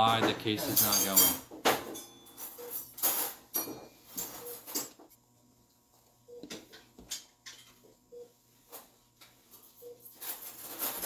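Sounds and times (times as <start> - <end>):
metal instruments clinking: 0.7 - 5.0.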